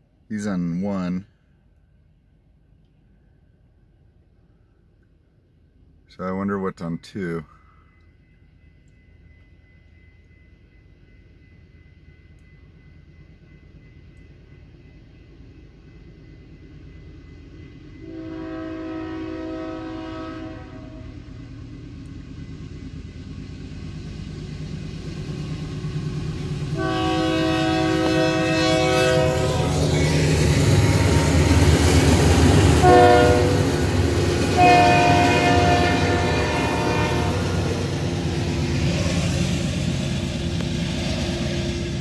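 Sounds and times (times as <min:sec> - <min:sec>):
locomotive horn blasts: 0:18.0 - 0:21.2, 0:26.7 - 0:30.1, 0:32.6 - 0:37.9.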